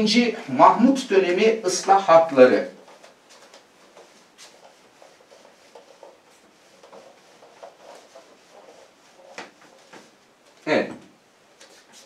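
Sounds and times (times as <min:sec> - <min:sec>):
faint scratches and light taps: 0:02.8 - 0:12.0.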